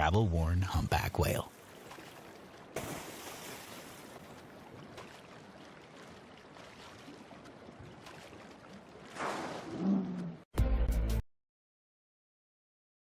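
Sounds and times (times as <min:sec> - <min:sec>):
faint wash of sea water: 0:01.5 - 0:10.4.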